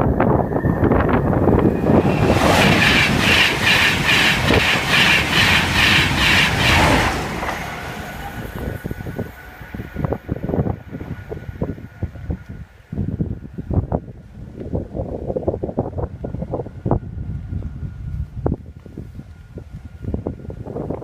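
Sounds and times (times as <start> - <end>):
train rushing past: 0.0 - 12.7
train wheels clattering: 1.5 - 9.4.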